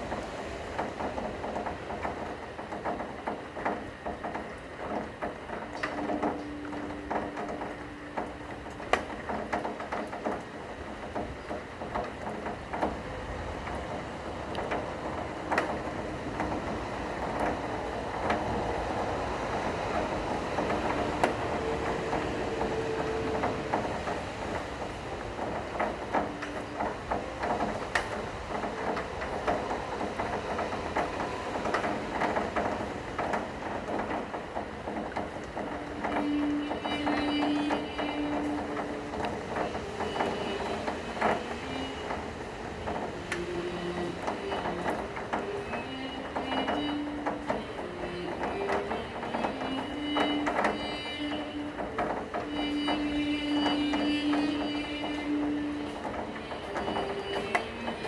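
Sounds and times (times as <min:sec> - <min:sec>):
faint long-held cello notes: 0:00.0 - 0:58.0
steady rain: 0:00.0 - 0:58.0.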